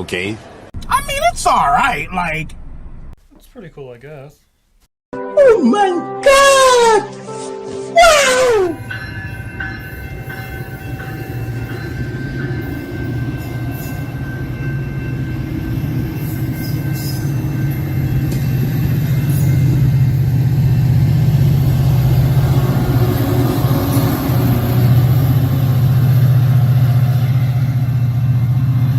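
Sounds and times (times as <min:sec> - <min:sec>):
low mechanical rumble: 0:00.8 - 0:03.2.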